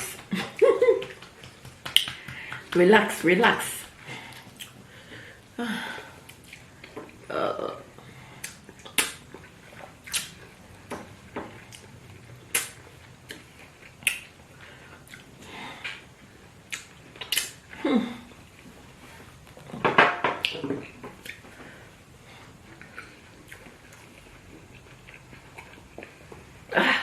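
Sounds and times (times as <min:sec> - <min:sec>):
eating mouth smacks and clicks: 0:01.0 - 0:02.8, 0:04.3 - 0:04.8, 0:08.4 - 0:11.0, 0:12.5 - 0:14.4, 0:16.7 - 0:17.6.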